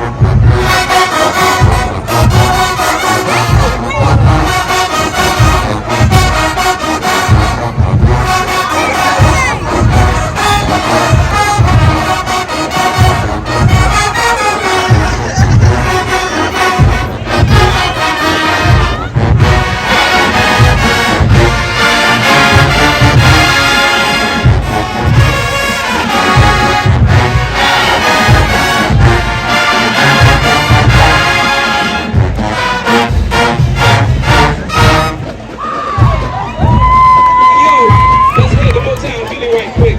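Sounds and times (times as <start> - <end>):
bass drum beat: 0.0 - 39.9
brass section playing: 0.0 - 39.9.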